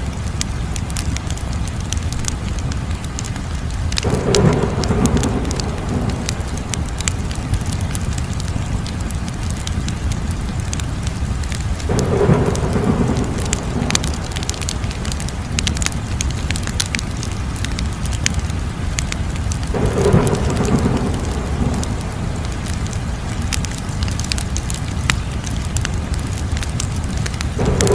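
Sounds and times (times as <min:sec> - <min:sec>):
rushing fire noise: 0:00.0 - 0:27.9
wood fire crackling: 0:00.0 - 0:27.9
sharp pops and snaps: 0:00.1 - 0:27.9
low rumble: 0:03.5 - 0:09.7, 0:11.5 - 0:18.4, 0:19.0 - 0:25.1, 0:25.7 - 0:27.9.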